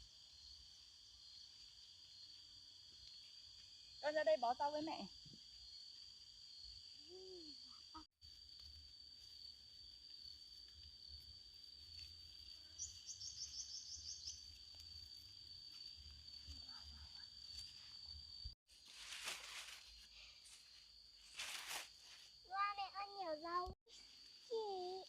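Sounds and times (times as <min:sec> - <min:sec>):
insect chirps: 0:00.0 - 0:25.0
insects droning: 0:00.0 - 0:25.0
rustling: 0:14.7 - 0:22.4.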